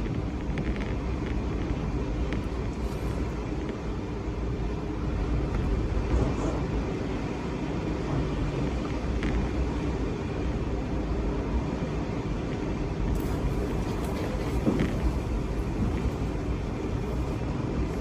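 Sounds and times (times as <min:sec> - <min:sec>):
strong wind gusting: 0:13.0 - 0:18.0.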